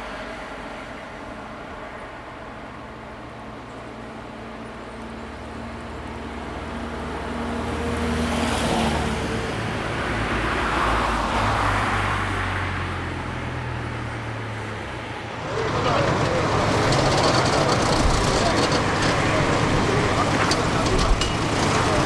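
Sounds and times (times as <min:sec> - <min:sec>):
road noise: 0:00.0 - 0:22.0
truck engine drone: 0:12.8 - 0:22.0.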